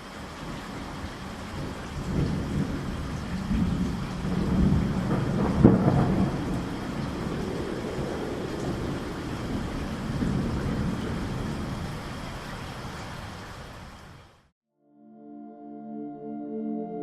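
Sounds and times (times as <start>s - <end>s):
steady rain: 0.0s - 14.5s
thunder rumbling: 0.2s - 13.4s.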